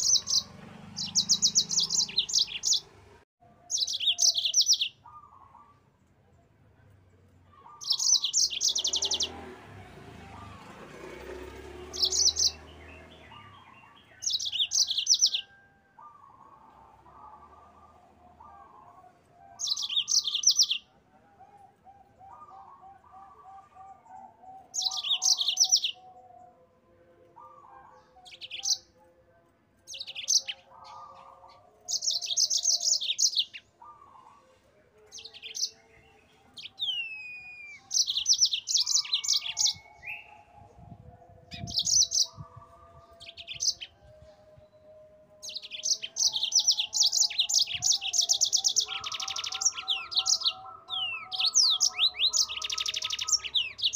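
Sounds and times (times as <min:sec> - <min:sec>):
canary singing trills: 0:00.0 - 0:05.9, 0:07.5 - 0:29.2, 0:29.8 - 0:53.9.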